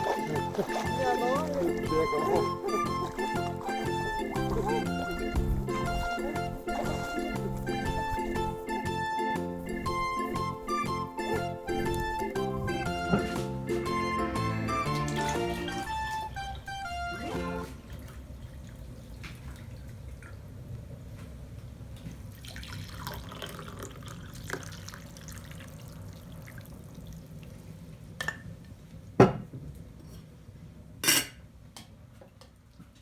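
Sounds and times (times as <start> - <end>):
water dripping and trickling: 17.8 - 20.5, 22.0 - 27.7.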